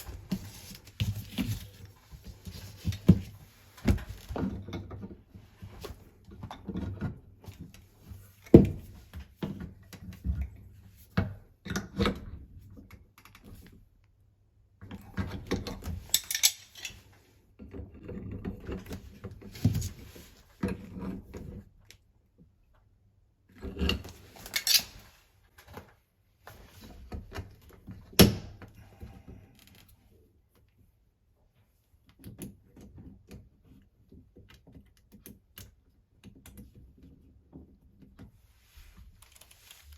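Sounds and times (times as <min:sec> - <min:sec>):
metal tools clinking and scraping: 0:16.1 - 0:17.0.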